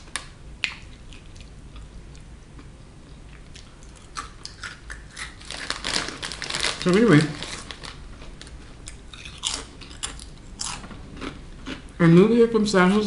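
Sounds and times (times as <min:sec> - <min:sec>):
person crunching a snack chip: 0:03.8 - 0:07.9, 0:08.9 - 0:11.8.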